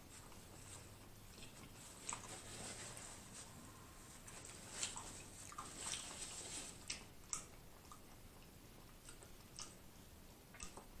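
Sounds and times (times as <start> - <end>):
faint chewing: 0.0 - 11.0
small wet mouth clicks: 6.8 - 8.2, 8.9 - 9.8, 10.5 - 11.0.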